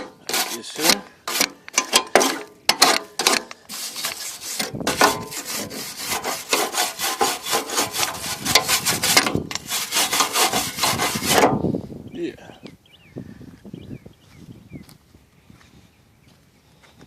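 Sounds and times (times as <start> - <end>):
scrubbing on steel mower deck: 0.0 - 11.6.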